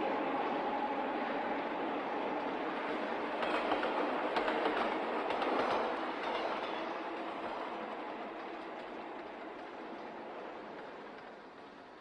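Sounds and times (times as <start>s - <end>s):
train running on track: 0.0s - 12.0s
wheels clacking over rail joints: 3.4s - 12.0s.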